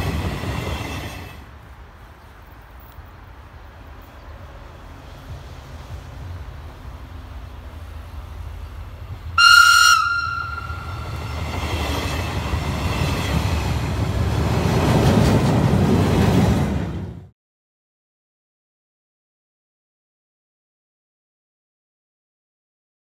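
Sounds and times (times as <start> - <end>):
train rumbling past: 0.0 - 17.3
train horn blast: 9.4 - 11.5.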